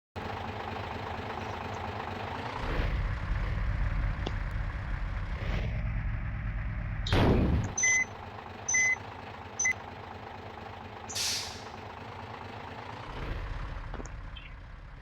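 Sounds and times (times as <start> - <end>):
truck engine straining: 0.2 - 15.0.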